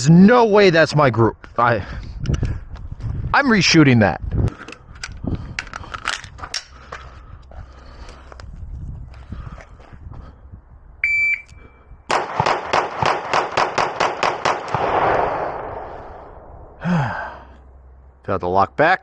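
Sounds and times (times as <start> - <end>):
shot timer beep: 11.0 - 11.8
pistol shots: 12.1 - 16.0.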